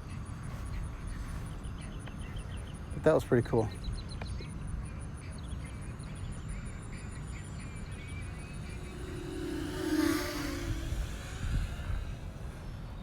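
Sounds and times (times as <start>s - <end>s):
faint chirps: 8.2s - 12.7s
motor hum passing: 8.2s - 13.0s
wind rumble on microphone: 8.4s - 13.0s.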